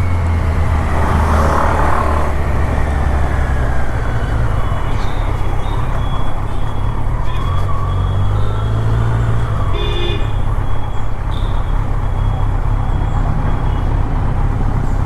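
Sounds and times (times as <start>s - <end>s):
motorcycle engine drone: 0.0s - 15.0s.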